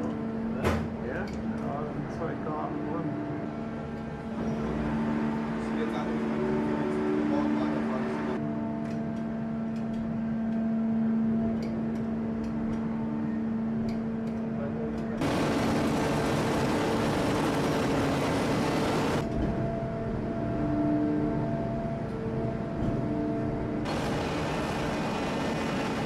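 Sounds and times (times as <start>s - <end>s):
machine hum with faint ticks: 0.0s - 0.5s, 1.1s - 1.8s, 8.4s - 26.0s
loud rushing hiss: 23.9s - 26.0s.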